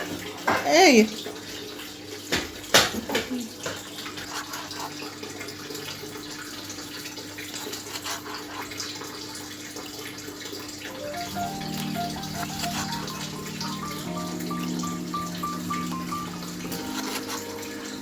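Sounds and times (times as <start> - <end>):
water running from a tap: 0.0 - 18.0.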